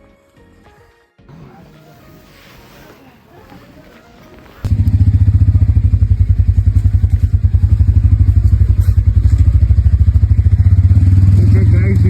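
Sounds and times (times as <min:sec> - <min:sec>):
motorcycle engine idling: 0:04.6 - 0:12.0.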